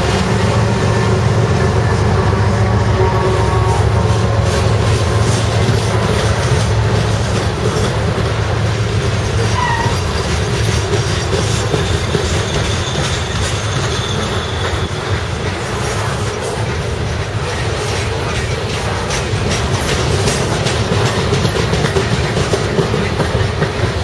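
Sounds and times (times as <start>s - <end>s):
train wheels rumbling on track: 0.0s - 24.0s
faint high wheel squeal: 9.5s - 10.3s, 11.4s - 15.3s.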